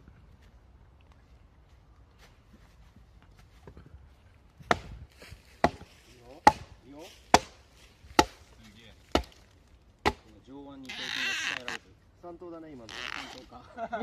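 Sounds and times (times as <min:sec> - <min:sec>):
firewood being chopped: 0:04.6 - 0:10.5.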